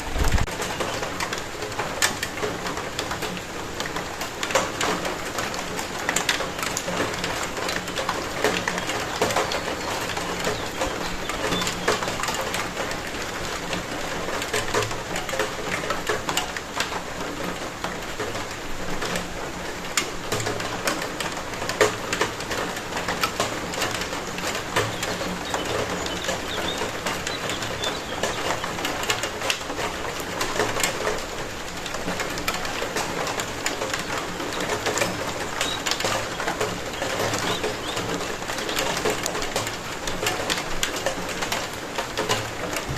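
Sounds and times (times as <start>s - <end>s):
steady rain falling: 0.0s - 42.9s
low repeated calls: 8.5s - 12.5s, 24.2s - 29.3s, 33.6s - 39.2s.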